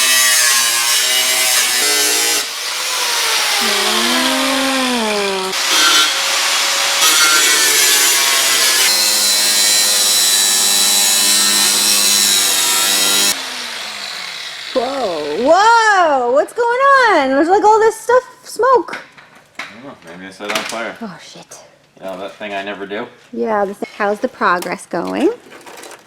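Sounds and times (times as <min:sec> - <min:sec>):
power grinder grinding sheet metal: 0:00.0 - 0:15.6.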